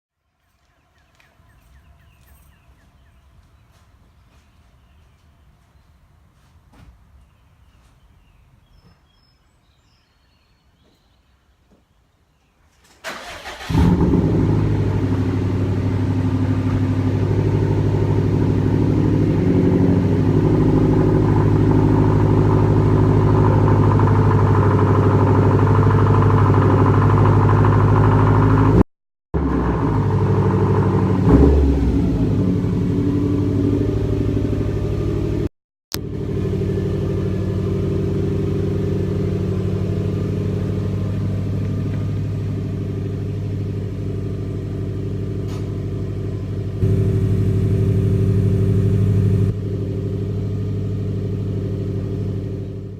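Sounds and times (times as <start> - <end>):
car engine cranking: 13.0 - 28.8, 33.7 - 49.6
loud car engine idling: 13.4 - 28.8, 29.4 - 52.9.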